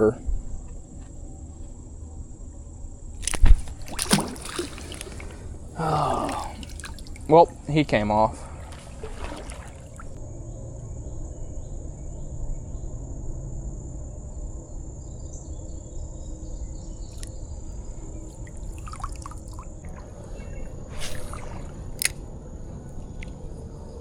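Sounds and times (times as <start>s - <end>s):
insects droning high-pitched whine: 0.0s - 24.0s
low rumble of creekside noise: 0.0s - 24.0s
faint chirps and clicks: 17.0s - 18.7s.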